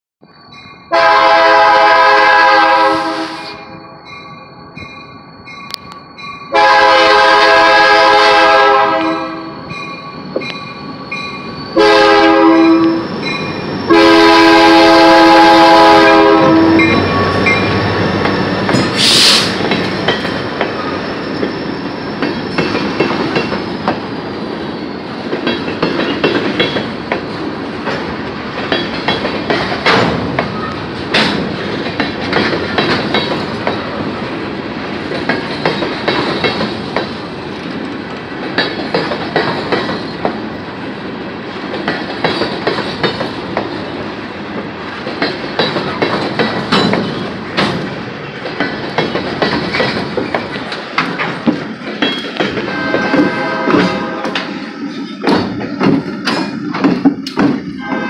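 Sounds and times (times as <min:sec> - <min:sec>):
locomotive horn blasts: 0:00.9 - 0:03.8, 0:06.5 - 0:09.6, 0:11.8 - 0:13.1, 0:13.9 - 0:17.6, 0:52.6 - 0:54.5, 0:57.7 - 0:58.0
wheels clacking over rails: 0:16.3 - 0:40.6, 0:41.5 - 0:58.0.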